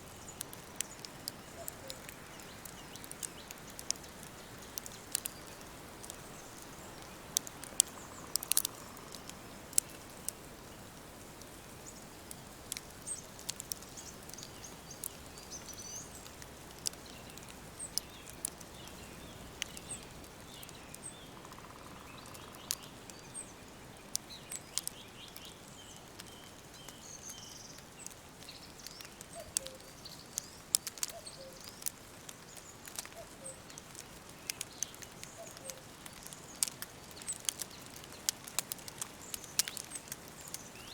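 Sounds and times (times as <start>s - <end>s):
sharp irregular crackles: 0.0s - 23.3s, 24.0s - 40.9s
faint steady hiss: 0.0s - 40.9s
small birds chirping: 0.0s - 40.9s.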